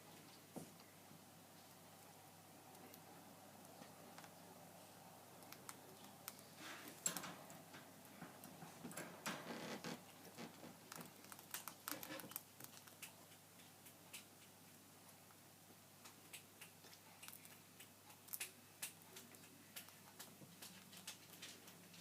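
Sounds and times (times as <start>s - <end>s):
rustling: 5.4s - 13.2s
rats clicking and scratching: 5.4s - 14.8s, 16.0s - 22.0s.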